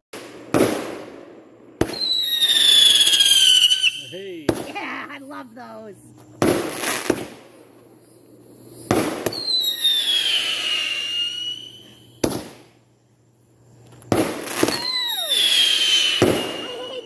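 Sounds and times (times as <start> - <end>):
fireworks bangs: 0.1 - 12.8, 13.9 - 17.0
falling firework whistle: 1.8 - 4.4, 8.7 - 12.7, 14.1 - 17.0.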